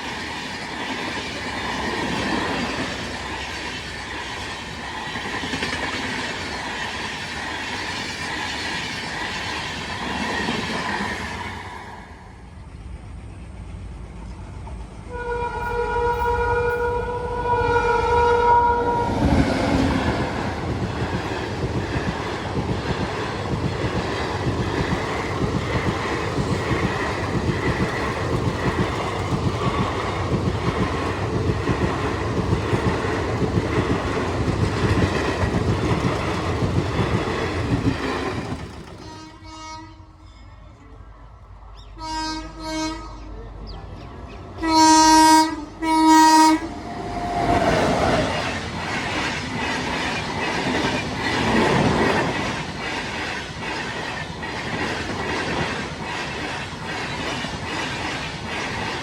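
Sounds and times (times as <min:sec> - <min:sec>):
train wheels clattering over rails: 0:00.0 - 0:11.7, 0:19.1 - 0:39.3, 0:46.9 - 0:59.0
train horn: 0:15.0 - 0:20.0, 0:39.0 - 0:40.5, 0:42.0 - 0:43.4, 0:44.6 - 0:46.8.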